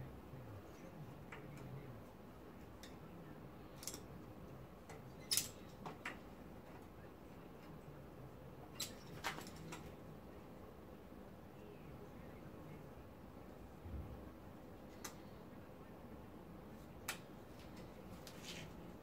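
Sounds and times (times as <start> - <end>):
tools and metal parts clicking: 3.7 - 4.1, 4.9 - 5.8, 8.8 - 9.9.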